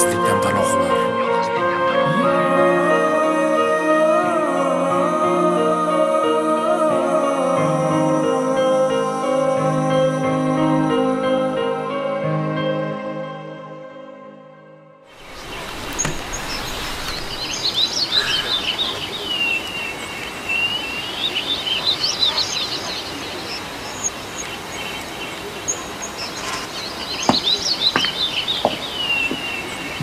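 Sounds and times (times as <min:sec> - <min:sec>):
songbirds chirping and singing: 0:15.1 - 0:30.0.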